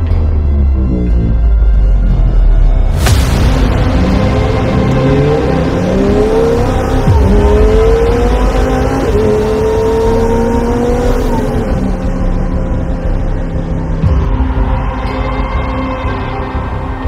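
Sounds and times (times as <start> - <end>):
sports car engine accelerating: 3.4 - 14.2.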